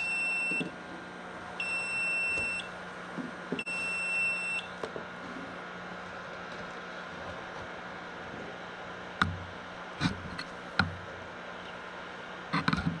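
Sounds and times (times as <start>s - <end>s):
alarm beeping: 0.0s - 0.7s, 1.6s - 2.8s, 3.6s - 4.8s.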